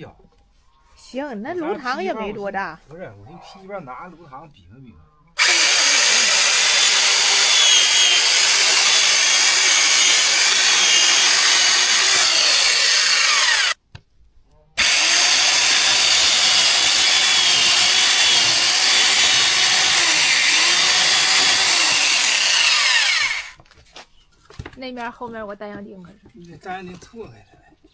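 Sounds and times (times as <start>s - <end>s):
power saw cutting wood: 5.4s - 13.8s, 14.8s - 23.6s.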